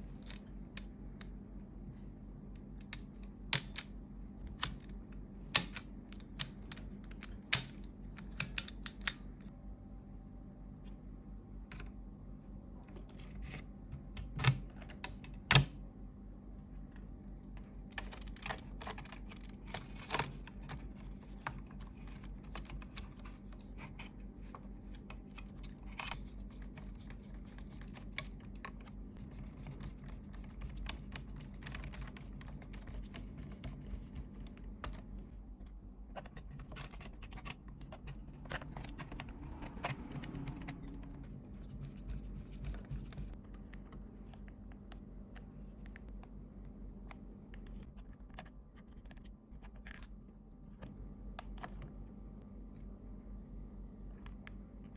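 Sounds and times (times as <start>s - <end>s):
low hum: 15.8s - 54.9s.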